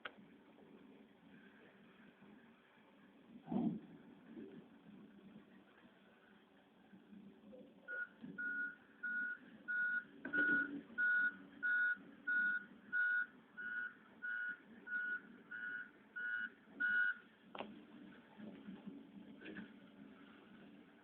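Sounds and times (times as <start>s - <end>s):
back-up alarm beeping: 7.9s - 17.2s.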